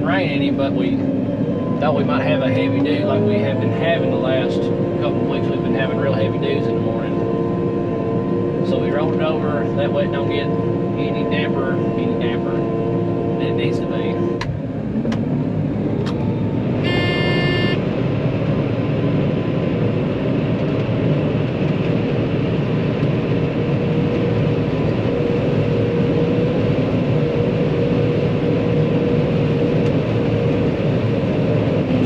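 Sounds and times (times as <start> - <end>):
combine harvester engine hum: 0.0 - 32.0
short electronic beep: 16.8 - 17.8.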